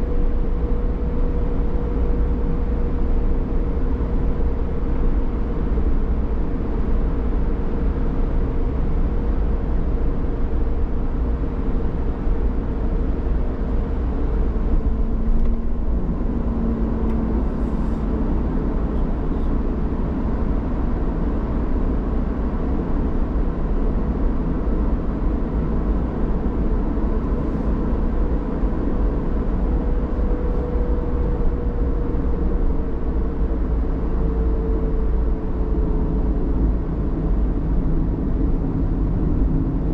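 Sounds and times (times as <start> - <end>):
vehicle tyre and engine noise: 0.0 - 39.9.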